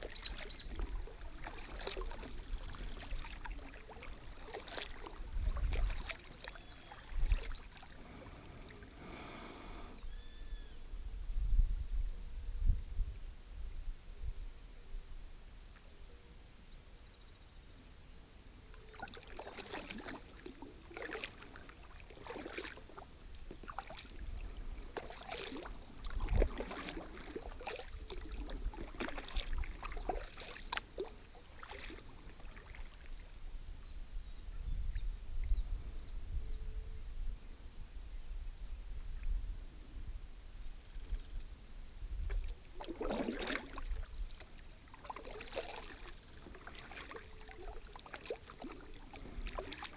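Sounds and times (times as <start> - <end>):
paddle splashing in water: 0.0 - 10.0, 18.8 - 33.4, 42.2 - 49.9.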